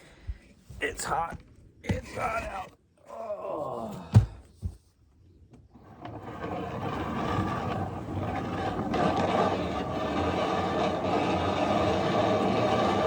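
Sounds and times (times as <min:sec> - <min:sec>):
machine humming and scraping: 0:05.8 - 0:13.0.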